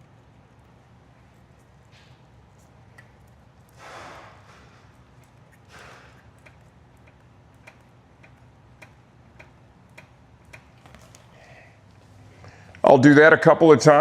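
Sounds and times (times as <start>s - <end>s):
faint regular ticking: 4.9s - 11.4s
soft breathy noise: 11.2s - 12.8s.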